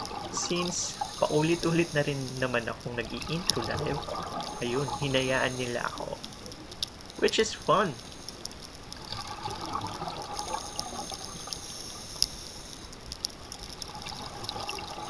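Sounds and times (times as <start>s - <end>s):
faint clicks: 0.0s - 15.0s
underwater regulator bubbles gurgling: 0.0s - 15.0s.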